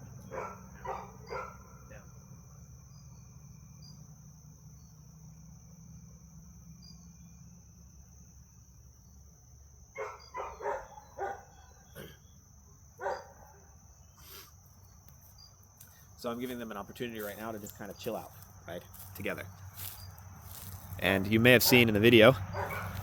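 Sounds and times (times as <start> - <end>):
crickets chirring: 0.0 - 23.0
dog barking: 0.3 - 2.0, 10.0 - 11.9, 13.0 - 13.7, 21.6 - 23.0.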